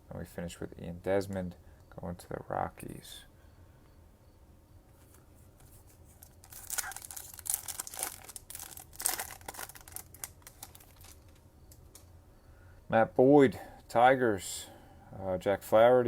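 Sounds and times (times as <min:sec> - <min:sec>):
foil wrapper tearing and crinkling: 0:06.1 - 0:11.4.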